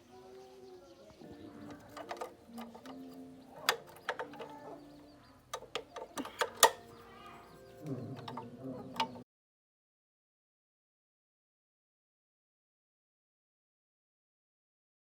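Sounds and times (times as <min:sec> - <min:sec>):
tools and metal parts clicking: 0:01.6 - 0:09.2.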